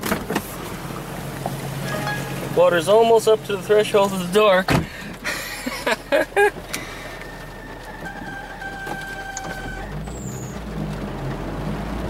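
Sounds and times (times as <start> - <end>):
engine low drone: 0.0 - 8.7, 9.4 - 12.0
belt squealing: 7.8 - 10.6.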